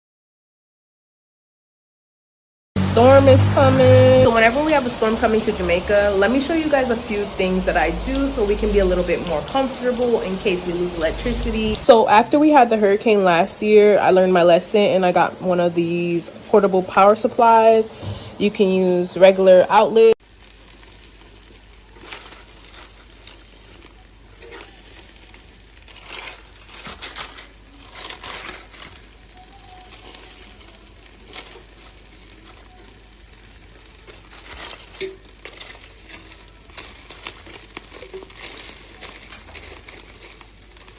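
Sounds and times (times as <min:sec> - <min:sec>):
low hum: 0:02.8 - 0:11.9
crackling and rustling: 0:02.8 - 0:18.0, 0:18.8 - 0:40.9.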